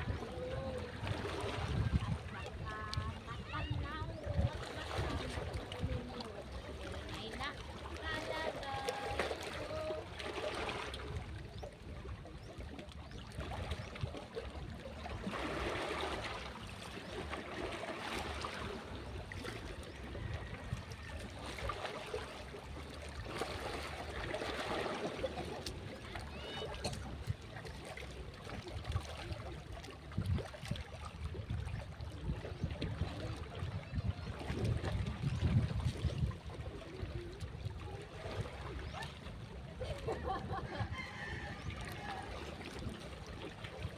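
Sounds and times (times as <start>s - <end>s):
waves washing onto a beach: 1.7s - 4.5s.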